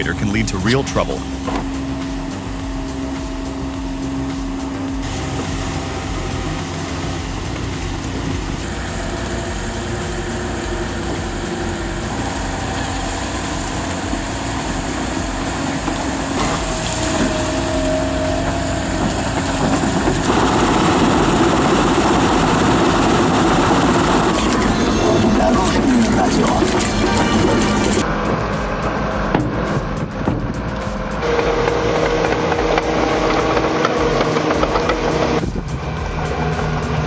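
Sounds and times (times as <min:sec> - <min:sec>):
heavy machine engine running: 0:00.0 - 0:37.0.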